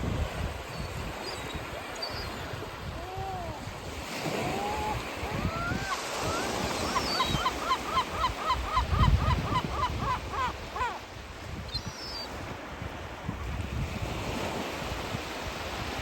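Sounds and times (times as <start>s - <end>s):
waves washing: 0.0s - 16.0s
wind rumbling on microphone: 0.0s - 16.0s
gulls calling: 1.2s - 11.1s.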